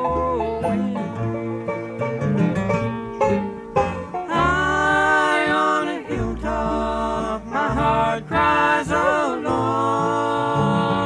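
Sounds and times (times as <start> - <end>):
banjo picking: 0.0 - 11.0
bluegrass band playing: 0.0 - 11.0
voices singing held notes: 4.2 - 11.0.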